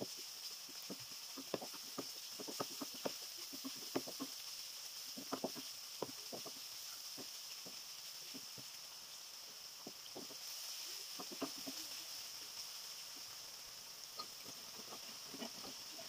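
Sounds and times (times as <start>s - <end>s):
onions sizzling in oil: 0.0s - 16.0s
wooden spatula scraping pan: 0.9s - 4.3s, 10.2s - 12.0s, 14.4s - 16.0s.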